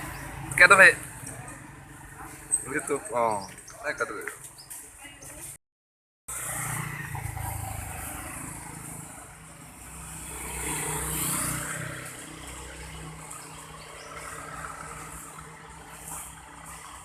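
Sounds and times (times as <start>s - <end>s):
vehicle engine passing by: 6.3s - 17.0s.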